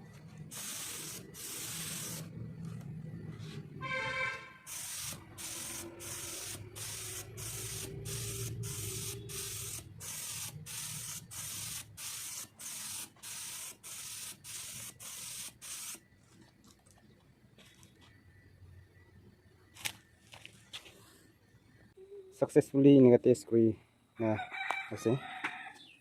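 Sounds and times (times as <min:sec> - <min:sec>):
spray gun air bursts: 0:00.4 - 0:02.3, 0:04.6 - 0:16.0.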